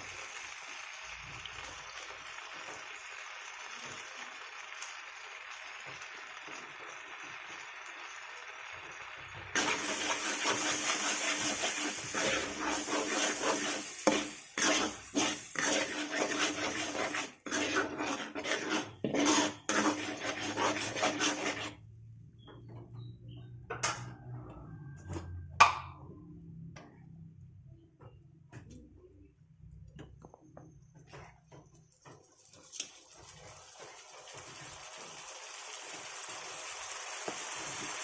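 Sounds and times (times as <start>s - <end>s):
food sizzling: 0.0s - 21.8s, 32.1s - 38.0s
metal utensil scraping pan: 9.6s - 21.8s.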